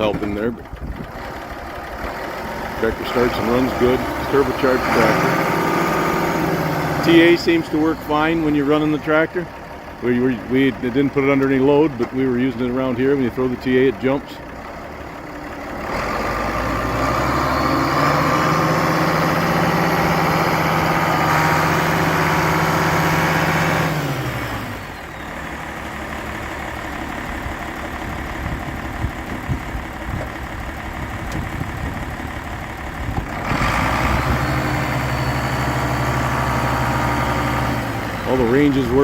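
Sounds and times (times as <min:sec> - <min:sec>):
engine knocking: 0:00.0 - 0:06.3, 0:24.8 - 0:39.0
diesel engine running: 0:00.0 - 0:39.0.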